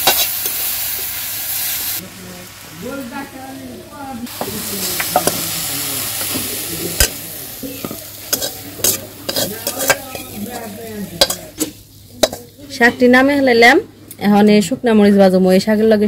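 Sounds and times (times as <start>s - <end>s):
fried leaves sizzling: 0.0s - 13.8s
spatula clinking on metal: 7.0s - 12.5s.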